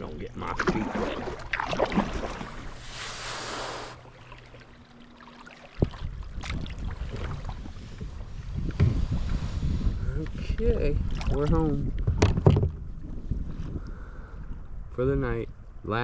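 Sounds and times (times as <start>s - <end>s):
hiss: 2.9s - 4.0s
wind buffeting microphone: 5.8s - 16.0s
kayak knock: 12.0s - 12.8s.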